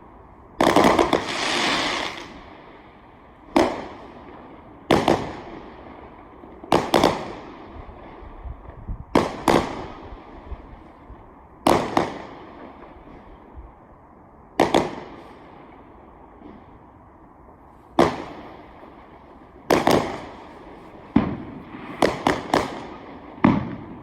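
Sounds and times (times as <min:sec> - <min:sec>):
fireworks exploding: 0:00.6 - 0:02.8, 0:03.5 - 0:06.1, 0:09.2 - 0:10.0, 0:18.0 - 0:24.0.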